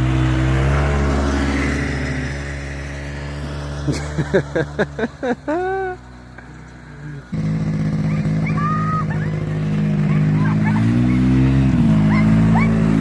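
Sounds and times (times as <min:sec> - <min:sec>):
snowmobile engine revving: 0:00.0 - 0:13.0
dog yelping: 0:08.0 - 0:13.0.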